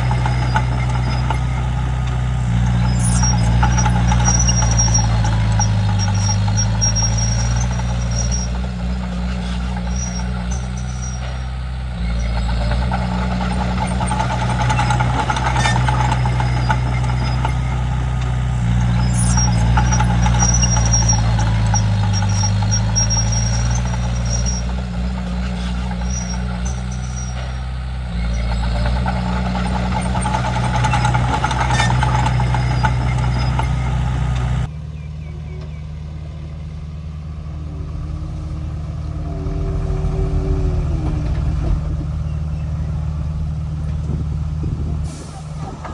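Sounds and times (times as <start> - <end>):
bulldozer diesel engine under load: 0.0 - 45.9.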